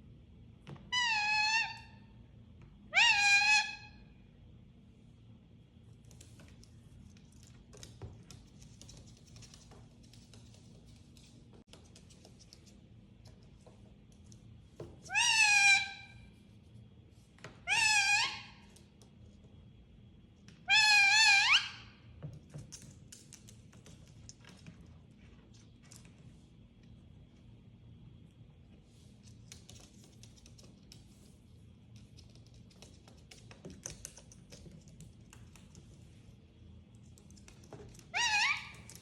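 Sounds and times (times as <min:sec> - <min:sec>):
parrot calling: 0:00.9 - 0:02.0, 0:02.9 - 0:04.0, 0:15.1 - 0:16.2, 0:17.6 - 0:18.7, 0:20.6 - 0:22.0, 0:38.1 - 0:39.0.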